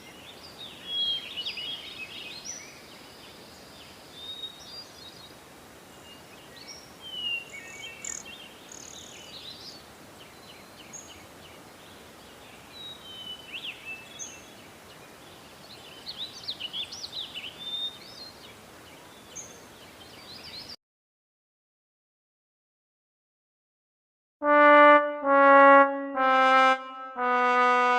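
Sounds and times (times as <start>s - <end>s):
background hiss: 0.0s - 20.8s.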